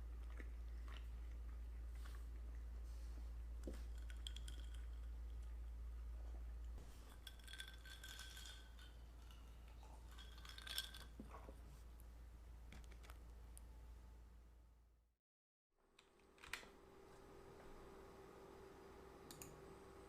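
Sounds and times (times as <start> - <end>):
steady low hum: 0.0 - 15.0
tableware clinking: 6.9 - 11.2.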